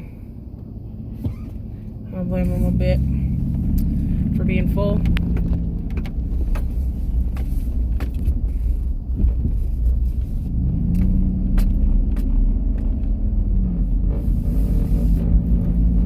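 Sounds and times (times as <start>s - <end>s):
truck engine and road rumble: 0.0s - 16.0s.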